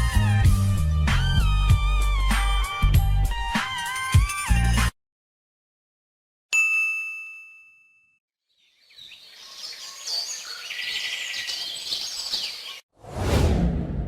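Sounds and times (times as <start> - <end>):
bright ding: 6.6 - 8.2
high bird chirps: 8.5 - 12.8.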